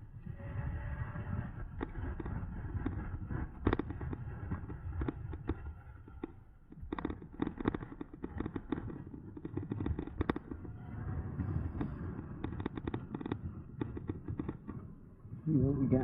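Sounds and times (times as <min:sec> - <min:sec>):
wind rumble on microphone: 0:00.0 - 0:16.0
bicycle rattles and clicks: 0:01.6 - 0:10.8, 0:11.4 - 0:15.2.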